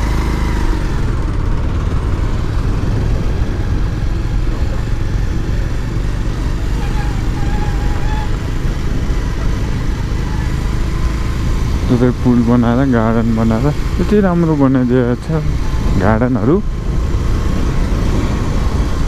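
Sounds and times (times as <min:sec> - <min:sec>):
motorcycle engine rumble: 0:00.0 - 0:19.0
wind noise on microphone: 0:15.4 - 0:19.0.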